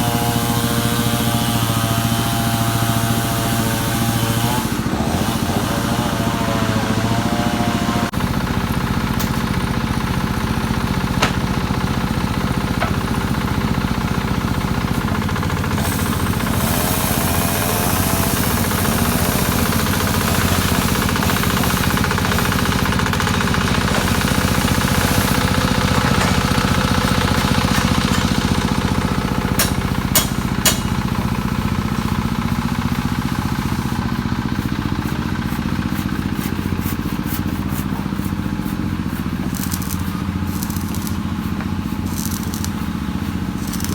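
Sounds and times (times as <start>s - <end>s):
engine running steadily: 0.0s - 43.9s
sharp clicks: 42.1s - 42.8s, 43.6s - 43.9s.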